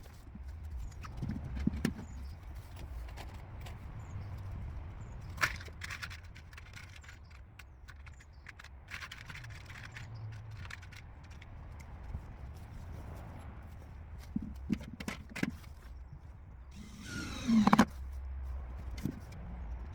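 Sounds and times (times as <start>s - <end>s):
wooden pieces knocking and clicking: 4.4s - 12.2s.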